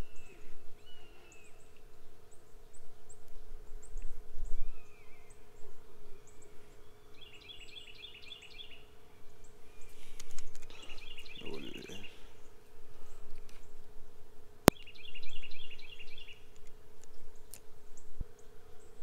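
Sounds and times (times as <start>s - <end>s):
birds whistling and chirping: 0.0s - 12.6s, 14.7s - 16.5s
faint steady hum: 0.0s - 19.0s.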